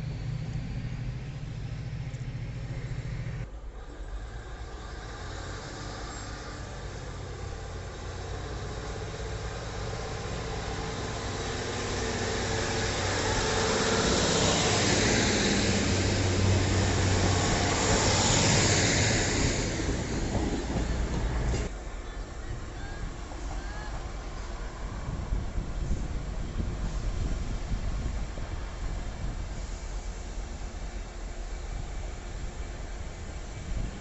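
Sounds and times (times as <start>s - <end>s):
diesel train engine humming: 0.0s - 34.0s
hiss of wheels and air: 23.2s - 34.0s.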